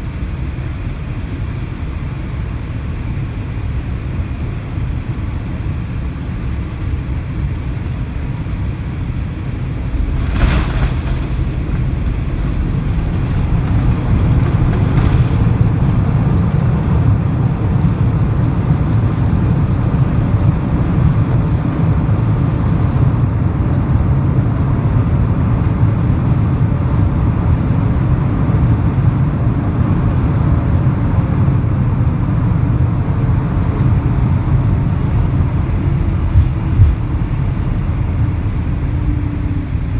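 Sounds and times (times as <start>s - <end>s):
airliner cabin rumble: 0.0s - 39.9s
touchdown jolt: 9.5s - 16.7s, 32.9s - 39.9s.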